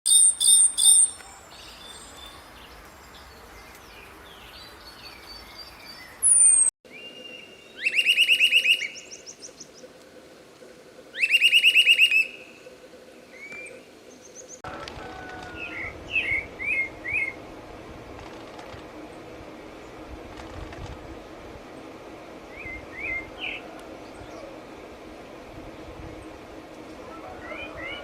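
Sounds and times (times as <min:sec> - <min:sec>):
bird trills: 0:00.1 - 0:02.4, 0:06.2 - 0:09.6, 0:11.1 - 0:12.6
songbirds singing: 0:00.1 - 0:10.2, 0:11.1 - 0:14.6, 0:21.7 - 0:28.0.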